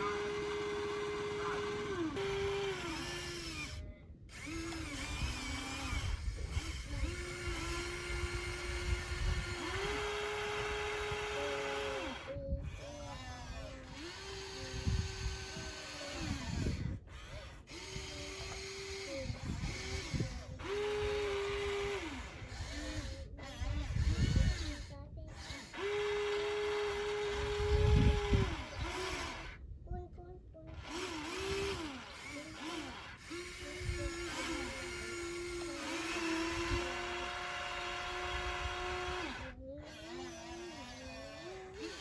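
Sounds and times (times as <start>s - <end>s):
electric motors whining: 0.0s - 29.7s, 30.5s - 42.0s.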